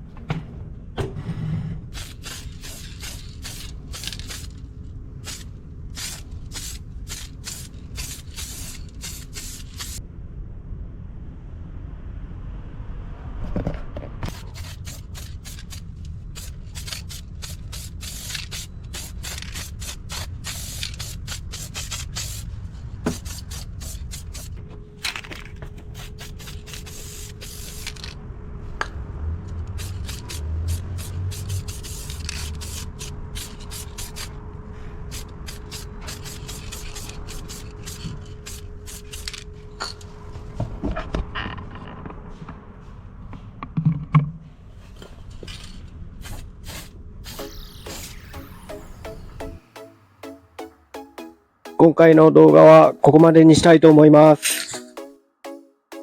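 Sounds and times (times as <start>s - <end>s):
spray paint hissing bursts: 1.9s - 4.6s, 5.2s - 10.0s, 14.3s - 22.5s, 23.1s - 24.6s, 25.9s - 28.2s, 29.7s - 34.4s, 35.1s - 39.4s, 46.2s - 49.6s.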